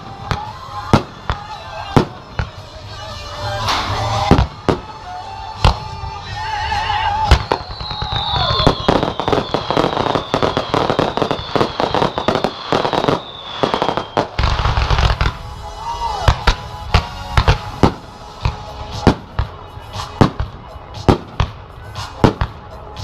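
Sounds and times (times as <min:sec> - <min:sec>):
firework bangs and crackling: 0:00.0 - 0:23.0
firework whistle falling in pitch: 0:03.4 - 0:18.2.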